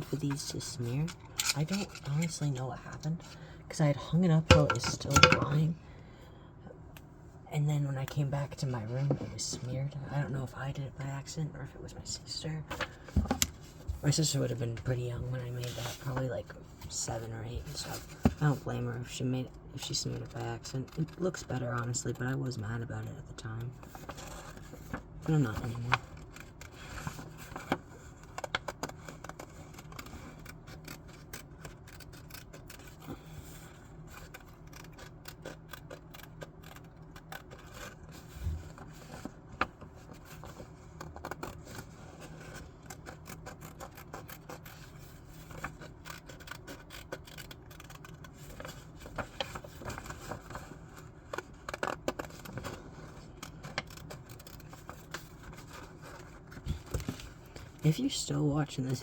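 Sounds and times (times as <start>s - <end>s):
paper being handled and scraped: 23.8s - 59.0s
scissors snipping paper: 25.2s - 39.3s, 40.1s - 57.2s.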